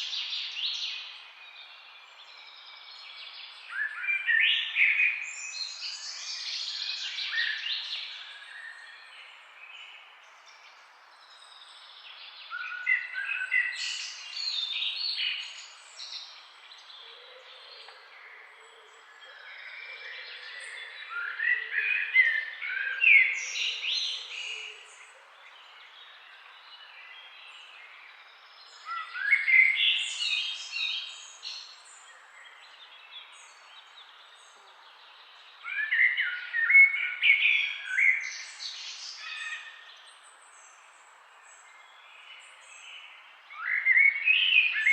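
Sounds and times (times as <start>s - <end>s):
songbird singing: 0.0s - 44.9s
faint background hiss: 22.0s - 44.9s.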